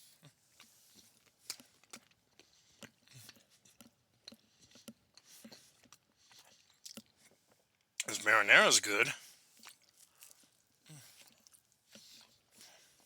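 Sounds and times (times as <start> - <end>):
person chewing food: 0.6 - 7.4, 9.6 - 12.4.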